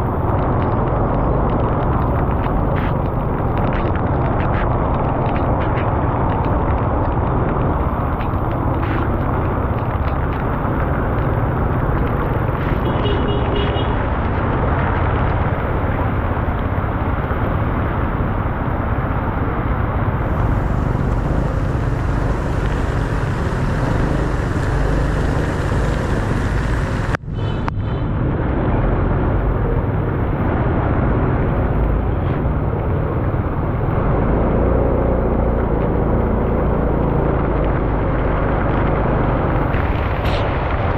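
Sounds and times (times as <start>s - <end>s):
heavy low wind buffeting: 0.0s - 12.9s, 14.0s - 27.3s
wind and road noise: 0.0s - 40.9s.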